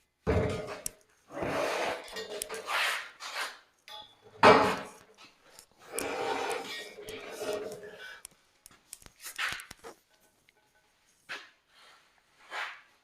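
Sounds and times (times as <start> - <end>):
objects rubbing and scraping: 0.5 - 3.7, 4.3 - 8.3.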